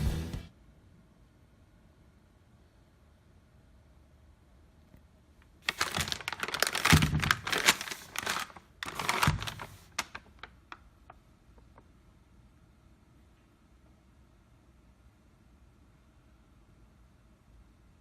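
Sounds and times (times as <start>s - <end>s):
wrapping crinkling: 5.6s - 11.2s.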